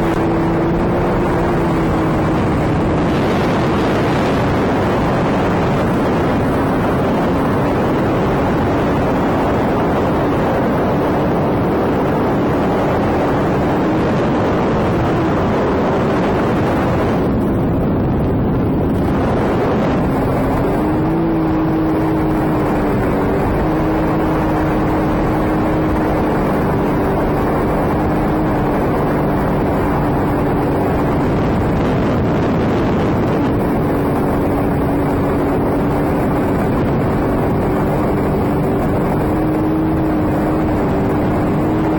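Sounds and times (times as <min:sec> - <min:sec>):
jet ski engine running: 0:00.0 - 0:41.9
wind and water rushing: 0:00.0 - 0:41.9.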